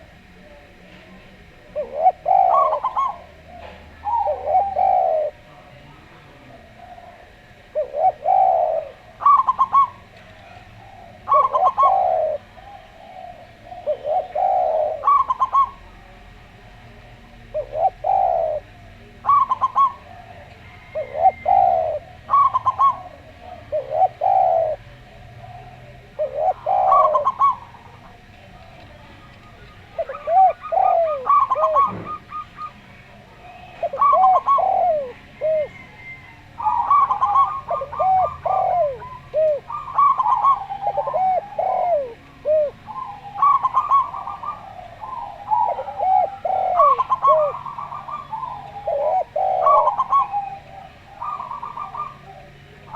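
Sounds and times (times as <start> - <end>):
doves cooing: 0.0 - 52.9.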